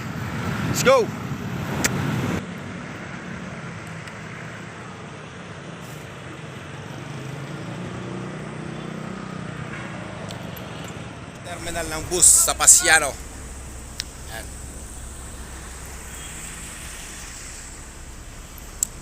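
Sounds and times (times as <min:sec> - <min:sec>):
road hiss: 0:03.8 - 0:07.3, 0:11.4 - 0:19.0
low engine hum: 0:11.4 - 0:19.0.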